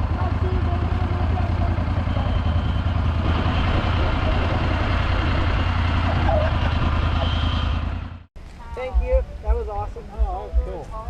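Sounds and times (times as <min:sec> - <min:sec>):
vehicle engine droning: 0:00.0 - 0:08.3.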